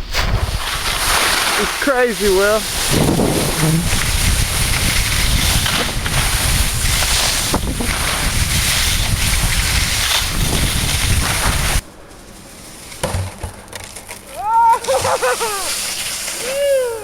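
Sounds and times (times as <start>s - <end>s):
wind rushing over microphone: 0.0s - 11.9s
skis hissing over snow: 0.0s - 13.0s, 14.3s - 17.0s.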